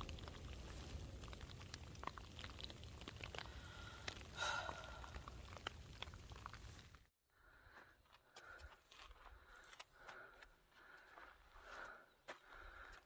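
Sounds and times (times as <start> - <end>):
raindrops ticking: 0.0 - 7.0.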